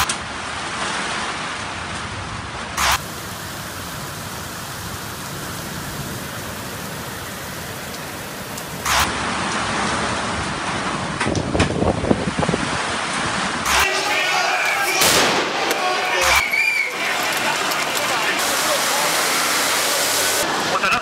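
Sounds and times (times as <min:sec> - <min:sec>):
heavy rain pouring: 0:00.0 - 0:21.0
sharp clicks: 0:07.8 - 0:09.1, 0:13.7 - 0:13.9, 0:14.6 - 0:18.7.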